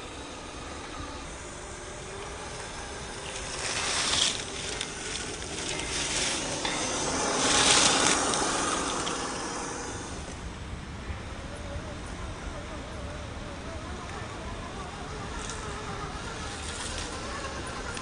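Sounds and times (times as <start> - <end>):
tires crunching on trail: 0.0 - 10.4.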